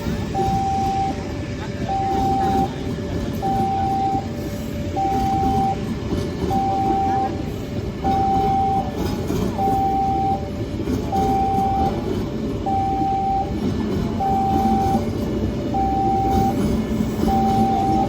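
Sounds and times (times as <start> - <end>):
train rumbling: 0.0 - 18.0
level crossing alarm two-note tone: 0.3 - 2.7, 3.4 - 5.9, 6.5 - 9.0, 9.6 - 13.6, 14.2 - 15.1, 15.7 - 16.6, 17.2 - 18.0.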